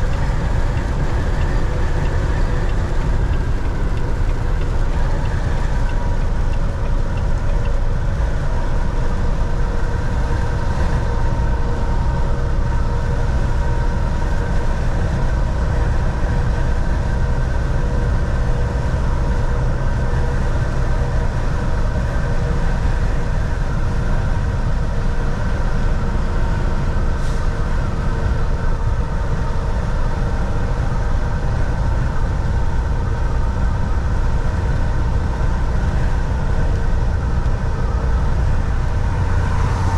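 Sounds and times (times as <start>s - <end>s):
faint whining tones: 0.0s - 7.6s
truck diesel engine and road rumble: 0.0s - 39.9s.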